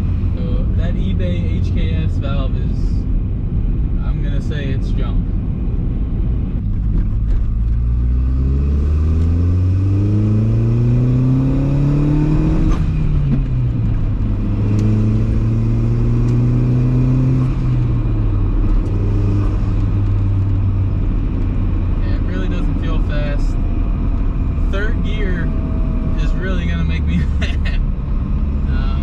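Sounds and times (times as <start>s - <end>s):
car engine revving through gears: 6.8s - 27.2s.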